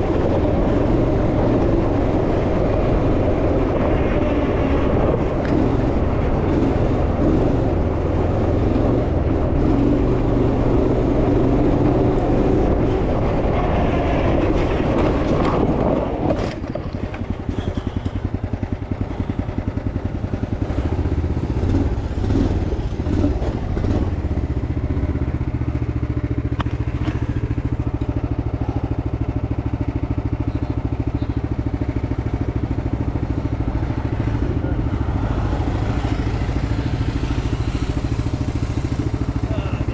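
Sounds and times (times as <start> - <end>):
off-road vehicle engine revving: 0.0 - 16.0, 20.6 - 24.6.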